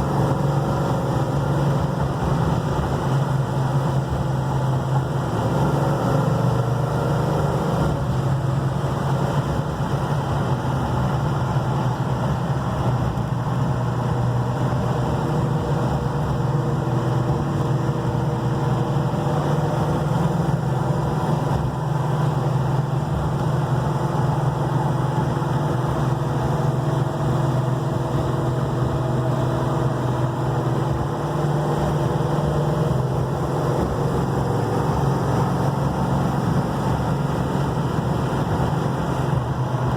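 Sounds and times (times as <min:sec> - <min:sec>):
car engine running: 0:00.0 - 0:39.9
road noise: 0:00.0 - 0:39.9.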